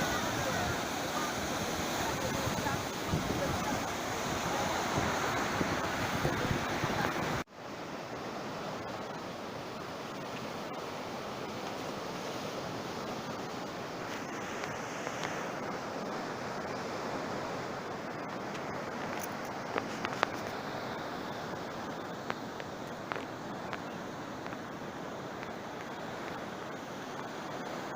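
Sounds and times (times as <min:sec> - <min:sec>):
sea waves washing on shore: 0:00.0 - 0:27.9.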